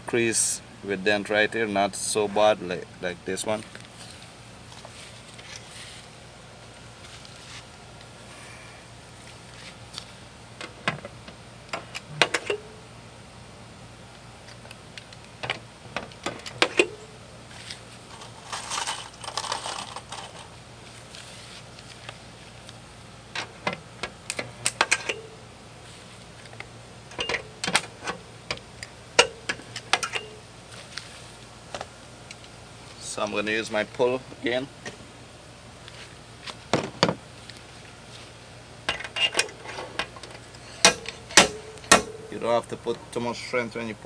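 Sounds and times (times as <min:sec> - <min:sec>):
metal tools clinking: 0:18.1 - 0:20.5, 0:38.9 - 0:42.4.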